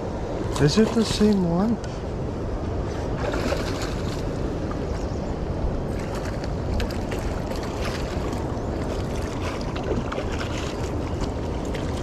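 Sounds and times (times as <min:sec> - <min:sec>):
wind on microphone: 0:00.0 - 0:12.0
river water rushing: 0:02.9 - 0:12.0.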